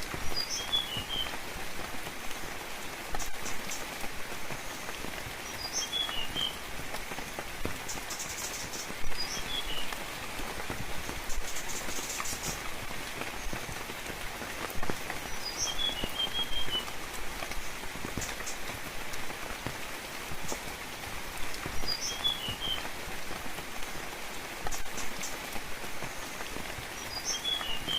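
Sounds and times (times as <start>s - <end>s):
rain falling: 0.0s - 27.9s
bird singing: 0.3s - 1.4s, 4.6s - 6.6s, 7.9s - 9.9s, 15.3s - 16.9s, 21.8s - 22.9s, 27.0s - 27.9s.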